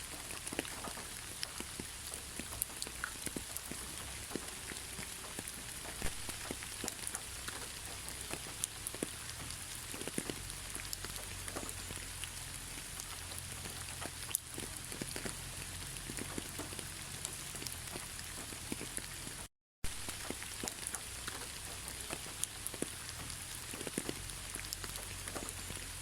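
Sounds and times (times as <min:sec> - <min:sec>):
raindrops tapping on a surface: 0:00.0 - 0:26.0.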